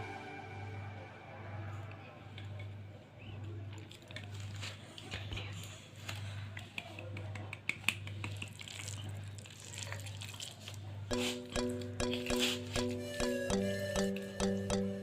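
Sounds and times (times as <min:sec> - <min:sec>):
music with held tones: 0:00.0 - 0:02.2, 0:11.1 - 0:15.0.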